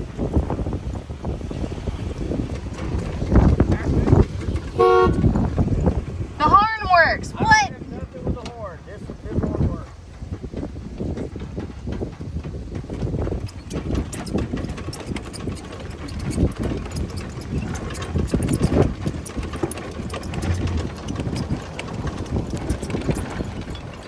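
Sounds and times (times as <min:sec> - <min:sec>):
engine knocks and clicks: 0:00.0 - 0:24.0
pickup engine rumbling: 0:00.0 - 0:24.0.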